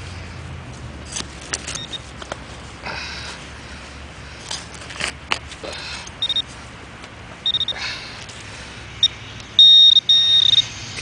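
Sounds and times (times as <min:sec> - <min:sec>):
digging and scraping in soil: 0:00.7 - 0:07.2
short high electronic beeps: 0:06.2 - 0:06.4, 0:07.5 - 0:07.8, 0:09.0 - 0:10.7.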